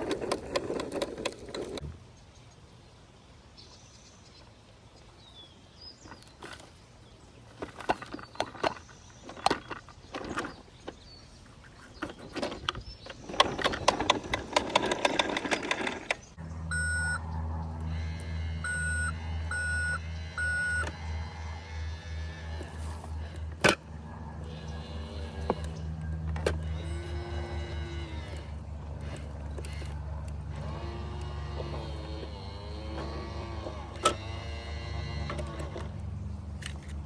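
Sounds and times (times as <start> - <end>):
plastic clicking and rattling: 0.0 - 1.8, 7.5 - 16.3
small electric motor running: 13.1 - 36.0
short electronic beeps: 16.7 - 17.2, 18.6 - 21.0.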